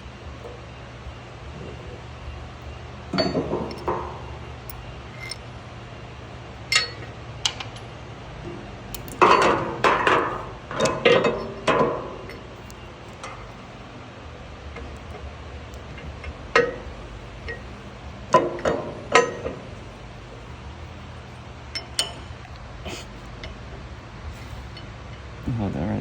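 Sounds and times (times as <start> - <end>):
metal parts clinking and clanking: 3.1 - 5.5, 6.7 - 7.9, 8.9 - 13.5, 18.3 - 19.6, 21.8 - 22.4.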